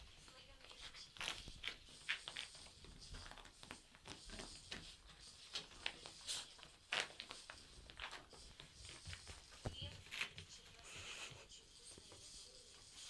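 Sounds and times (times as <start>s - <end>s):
dog rubbing on carpet: 0.2s - 13.0s.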